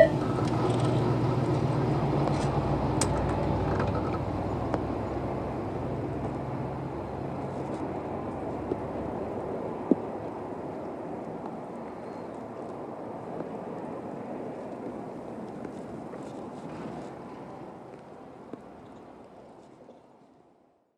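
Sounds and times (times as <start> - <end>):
train rumble: 0.0 - 17.9.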